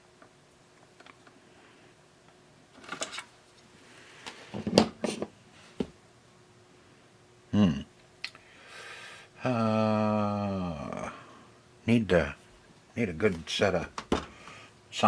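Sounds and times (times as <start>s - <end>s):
murmured voice: 7.5s - 7.9s, 9.4s - 11.3s
plastic parts clicking and knocking: 14.0s - 14.3s.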